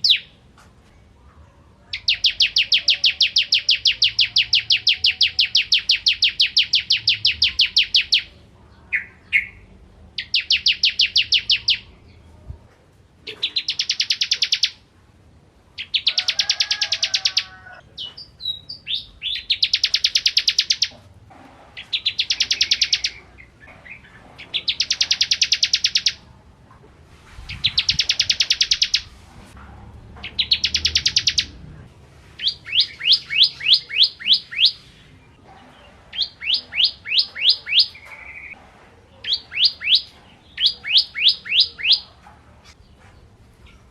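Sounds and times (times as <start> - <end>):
bird singing fast high trills: 30.4 - 31.5, 32.4 - 34.8.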